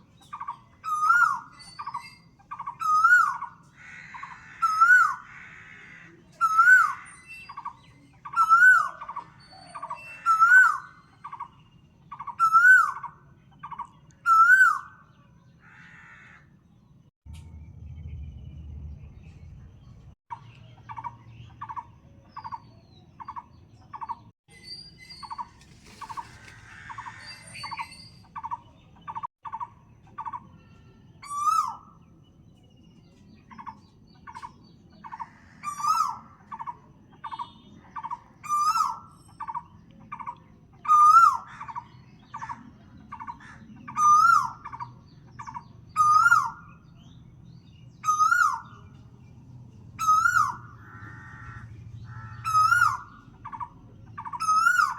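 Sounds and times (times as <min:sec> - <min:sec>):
harsh wavering bird call: 0:48.0 - 0:48.9, 0:50.0 - 0:54.9.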